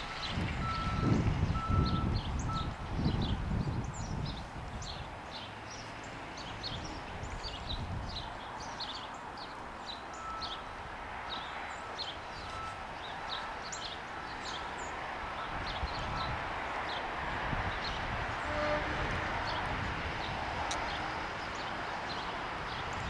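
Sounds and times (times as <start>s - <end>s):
truck engine rumbling: 0.0s - 4.8s
small birds chirping: 0.2s - 17.1s.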